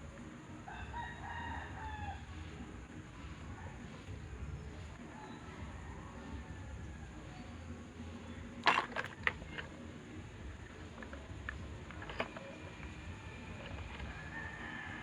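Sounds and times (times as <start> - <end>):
low background hum: 0.0 - 15.0
clicks of small parts handled: 10.8 - 12.6.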